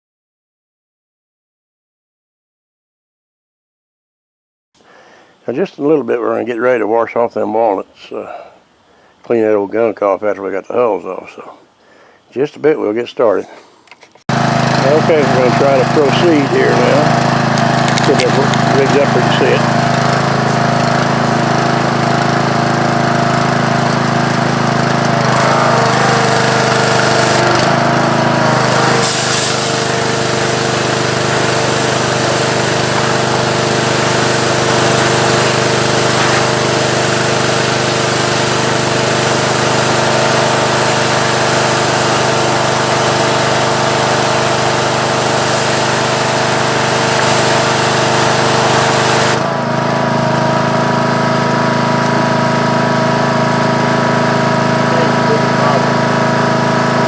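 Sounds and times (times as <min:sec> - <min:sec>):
pressure washer engine hum: 0:14.3 - 0:57.0
water spray hiss: 0:28.4 - 0:49.2.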